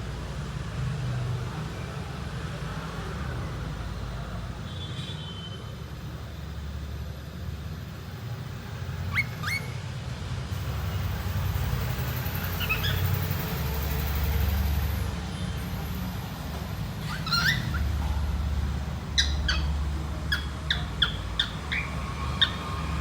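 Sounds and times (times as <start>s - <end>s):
cockatiel chirping: 9.0s - 9.8s, 12.4s - 13.5s, 17.0s - 23.0s.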